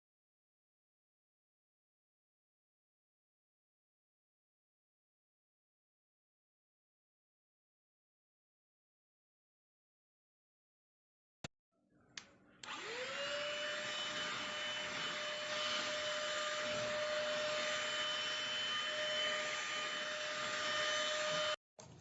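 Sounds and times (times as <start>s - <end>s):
handheld vacuum cleaner motor: 12.6s - 21.6s.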